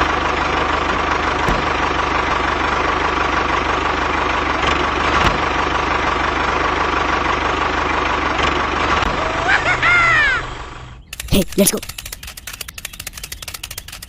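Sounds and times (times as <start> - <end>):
small motor whirring: 11.2 - 14.0.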